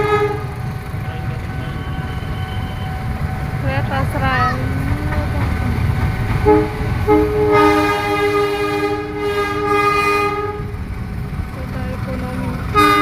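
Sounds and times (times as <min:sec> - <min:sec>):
train horn blasts: 0:00.0 - 0:03.3, 0:06.4 - 0:10.8, 0:12.7 - 0:13.0
train rumbling: 0:00.0 - 0:13.0.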